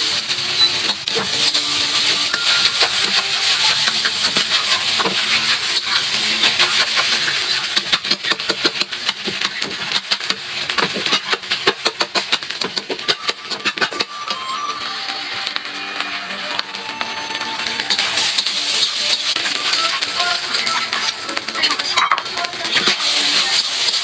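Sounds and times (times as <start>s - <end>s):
food sizzling in a frying pan: 0.0s - 14.1s, 17.7s - 24.0s
stirring clicks and scrapes: 2.6s - 14.1s.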